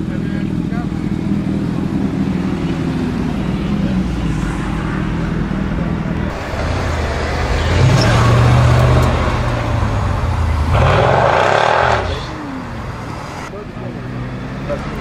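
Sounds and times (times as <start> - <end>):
sports car engine running: 0.0 - 13.2
loud rushing noise: 1.7 - 13.5.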